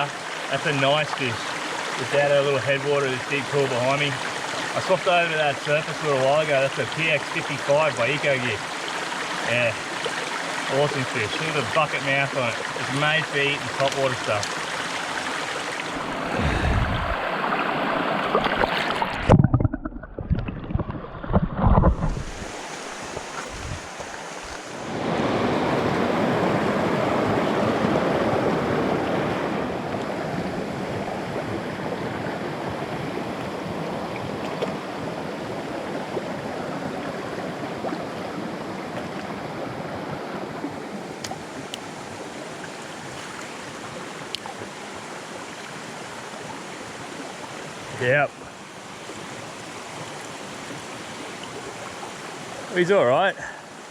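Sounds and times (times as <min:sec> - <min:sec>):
creek water flowing: 0:00.0 - 0:53.9
muffled low thumps: 0:16.2 - 0:17.2, 0:23.4 - 0:24.0.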